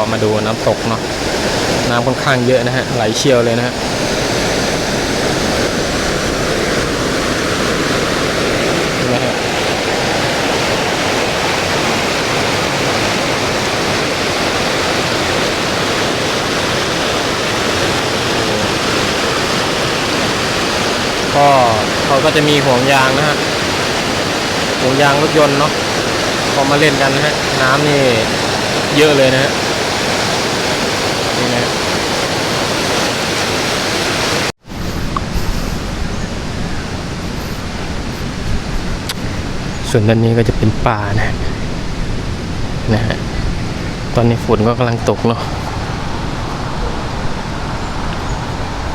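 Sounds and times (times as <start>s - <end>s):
waterfall and stream rushing: 0.0s - 48.9s
low rumbling: 34.6s - 48.9s.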